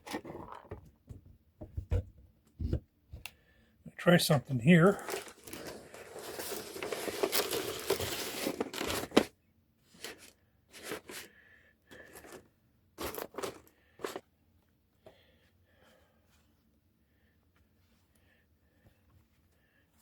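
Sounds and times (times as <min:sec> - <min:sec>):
newspaper tearing and rustling: 0:05.0 - 0:09.3.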